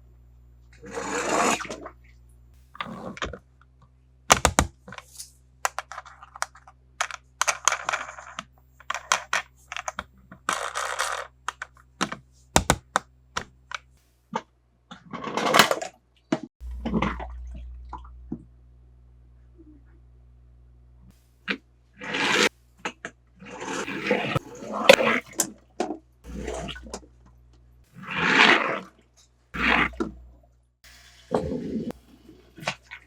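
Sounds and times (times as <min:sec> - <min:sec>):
plastic toys clicking and tapping: 0:04.3 - 0:14.4.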